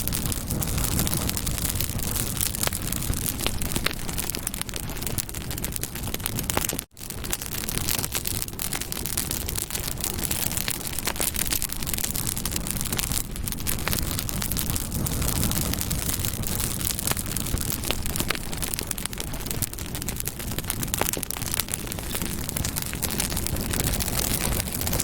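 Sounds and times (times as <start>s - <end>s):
rush of flames: 0.0s - 25.0s
wood crackles and pops: 0.0s - 25.0s.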